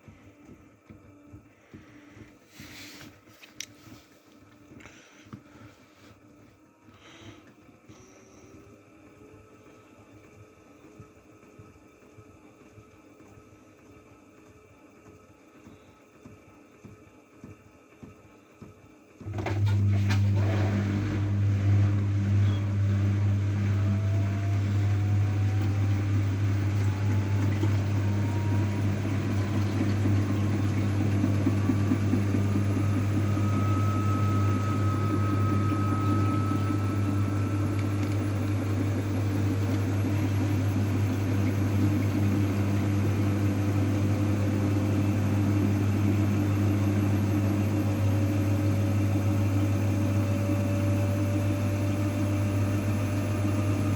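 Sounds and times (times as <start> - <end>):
washing machine humming: 0.0 - 53.9
washing machine drum whine rising: 18.0 - 53.9.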